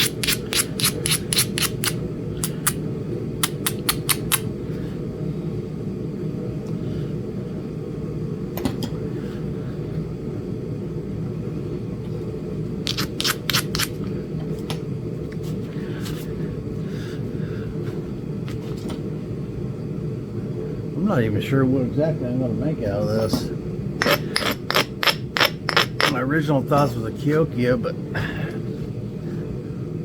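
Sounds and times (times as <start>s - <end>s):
stone knapping clicks: 0.0s - 2.8s, 3.4s - 4.4s, 12.9s - 13.9s
steady low hum: 0.0s - 30.0s.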